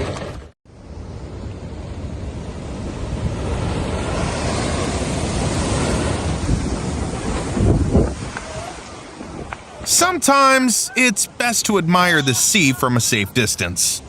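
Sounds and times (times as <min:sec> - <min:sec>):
waves and surf: 0:00.7 - 0:14.0
wind buffeting microphone: 0:01.7 - 0:09.8.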